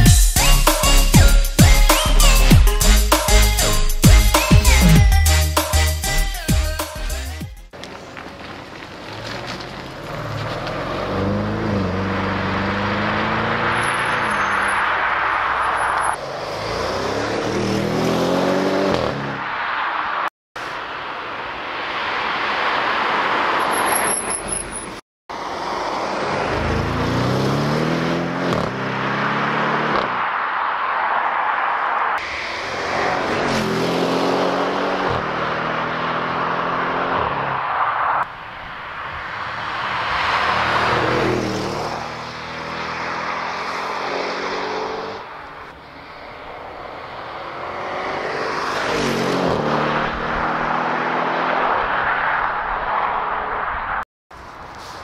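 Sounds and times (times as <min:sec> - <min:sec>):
car engine accelerating hard: 0:09.1 - 0:14.4, 0:25.8 - 0:30.4, 0:32.2 - 0:37.7, 0:39.4 - 0:45.6, 0:46.2 - 0:53.5.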